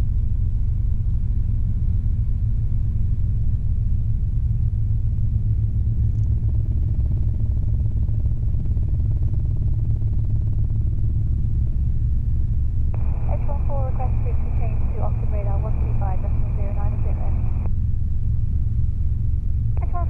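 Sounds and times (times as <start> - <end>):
helicopter rotor and engine drone: 0.0 - 20.0
faint higher hum: 9.6 - 20.0.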